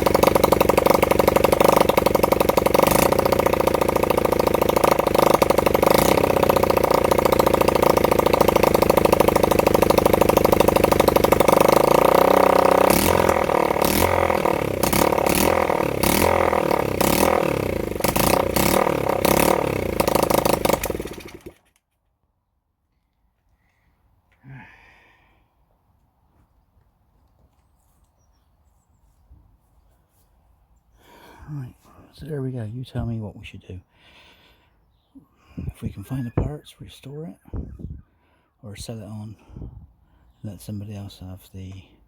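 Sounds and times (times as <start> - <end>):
motorcycle engine running and popping: 0.0 - 21.8.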